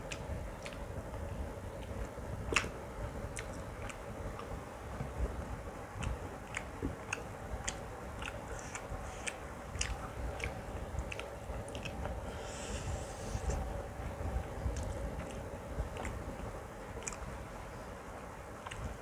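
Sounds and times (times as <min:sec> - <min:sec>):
chewing and mouth noises: 0:00.0 - 0:01.0, 0:01.8 - 0:13.7, 0:14.6 - 0:17.4, 0:18.6 - 0:19.0
low background hum: 0:00.0 - 0:19.0
wet clicks and smacks: 0:17.0 - 0:17.3.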